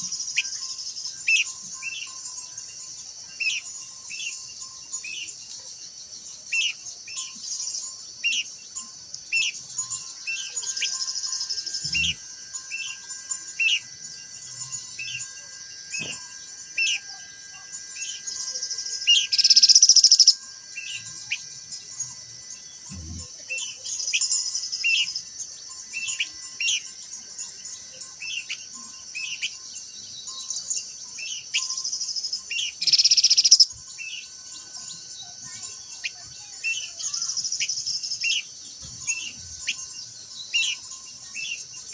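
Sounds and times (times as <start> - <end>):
high-pitched insect buzz: 0.0 - 41.9
bird sharp chirps: 15.9 - 17.1, 32.5 - 34.3.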